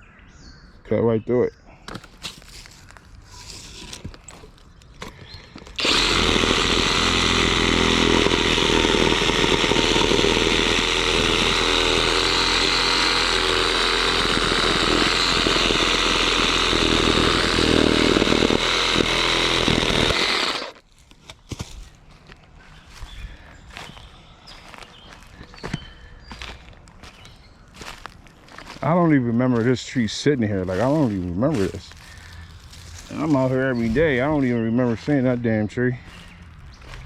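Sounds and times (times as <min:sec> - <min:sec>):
reciprocating saw cutting wood: 0:05.5 - 0:20.8.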